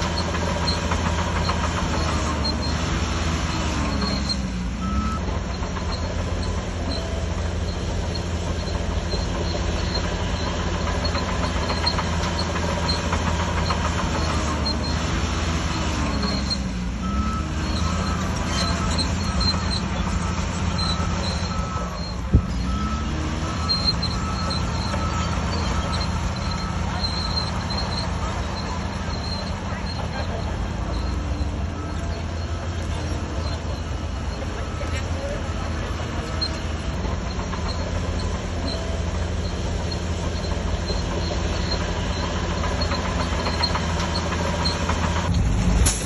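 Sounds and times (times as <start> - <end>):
bulldozer diesel engine running: 0.0 - 46.0
short beeps: 16.1 - 36.8.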